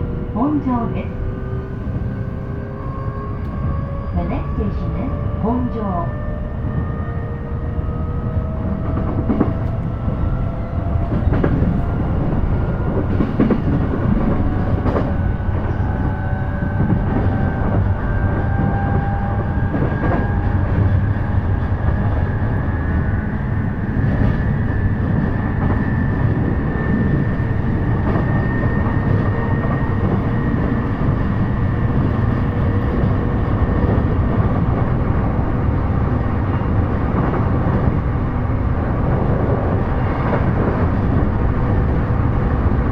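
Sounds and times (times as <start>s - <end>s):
train wheels rumbling on rail: 0.0s - 42.9s.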